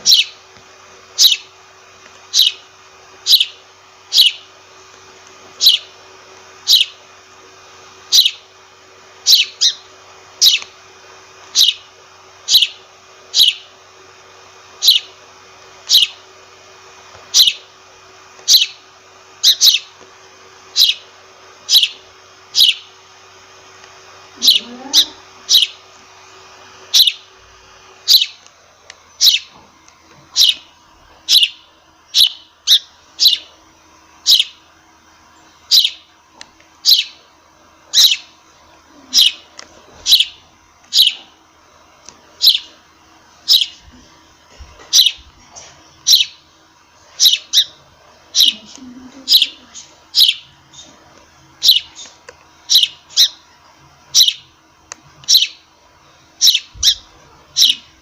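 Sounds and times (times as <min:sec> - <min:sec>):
sparrow chirping: 0:00.0 - 0:00.4, 0:01.2 - 0:01.5, 0:02.2 - 0:02.6, 0:03.2 - 0:04.5, 0:05.6 - 0:06.0, 0:06.6 - 0:07.1, 0:08.1 - 0:08.5, 0:09.2 - 0:10.8, 0:11.5 - 0:13.7, 0:14.8 - 0:15.2, 0:15.8 - 0:16.2, 0:17.3 - 0:17.8, 0:18.4 - 0:18.8, 0:19.4 - 0:20.0, 0:20.7 - 0:23.0, 0:24.4 - 0:25.9, 0:26.8 - 0:27.3, 0:28.0 - 0:28.4, 0:29.1 - 0:29.6, 0:30.3 - 0:33.6, 0:34.2 - 0:34.7, 0:35.4 - 0:36.1, 0:36.8 - 0:37.3, 0:37.9 - 0:38.4, 0:39.1 - 0:41.3, 0:42.4 - 0:42.8, 0:43.4 - 0:43.9, 0:44.8 - 0:45.3, 0:45.9 - 0:46.5, 0:47.1 - 0:51.0, 0:51.6 - 0:54.5, 0:55.2 - 0:55.7, 0:56.3 - 0:58.0.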